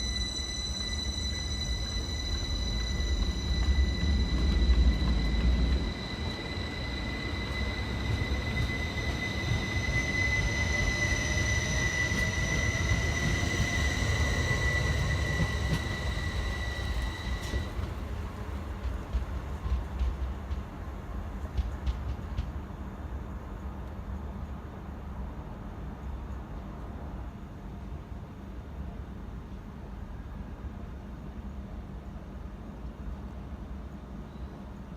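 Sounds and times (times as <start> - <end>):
whine rising in pitch: 0.0 - 17.7
steady high whine: 0.0 - 18.2
electric train rumble: 0.0 - 34.9.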